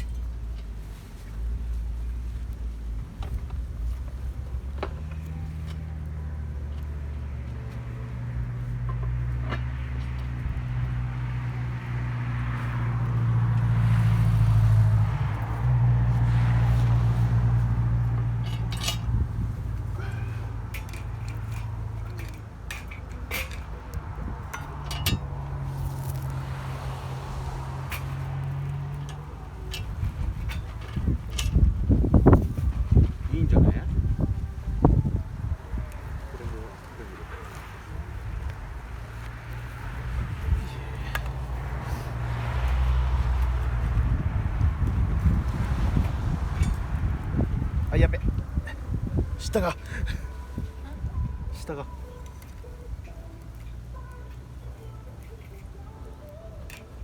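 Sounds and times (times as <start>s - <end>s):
distant race car engines droning: 0.0s - 57.0s
metal cookware clinking: 18.3s - 19.2s, 19.8s - 23.8s, 24.5s - 25.4s.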